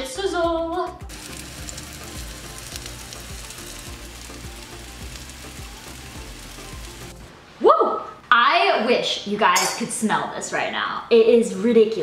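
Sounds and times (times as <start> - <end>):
bread sizzling in a frying pan: 1.1 - 7.3.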